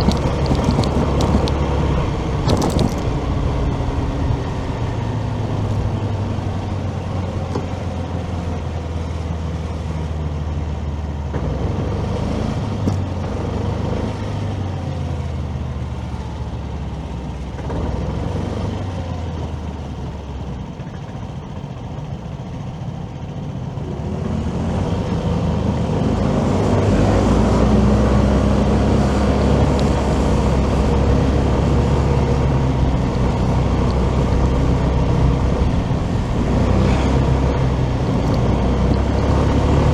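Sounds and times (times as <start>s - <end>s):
motorcycle engine: 0.0s - 8.8s
road and traffic noise: 0.0s - 39.9s.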